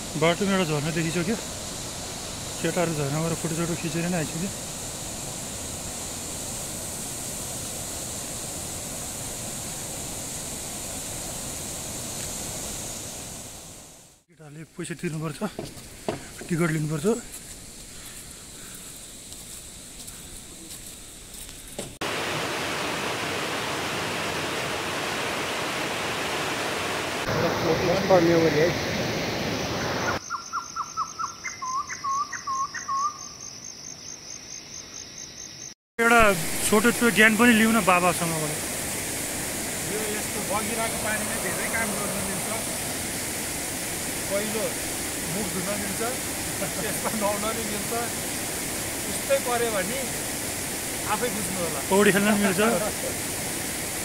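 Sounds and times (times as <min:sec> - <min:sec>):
waterfall rushing: 0:00.0 - 0:14.0, 0:22.0 - 0:30.2, 0:36.0 - 0:54.0
high-pitched insect trill: 0:00.2 - 0:14.0, 0:15.1 - 0:21.8, 0:30.1 - 0:35.8, 0:36.8 - 0:53.8
bird whistling: 0:30.2 - 0:33.3.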